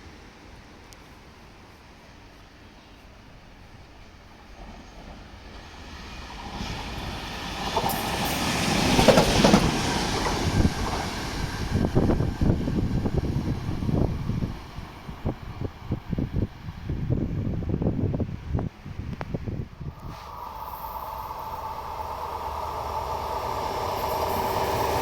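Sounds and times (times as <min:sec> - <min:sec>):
train passing rumble: 0:00.0 - 0:25.0
wheels clattering over rail joints: 0:08.8 - 0:11.1.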